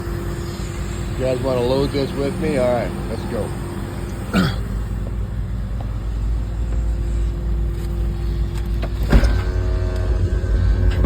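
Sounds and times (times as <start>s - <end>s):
excavator diesel engine rumbling: 0.0s - 11.0s.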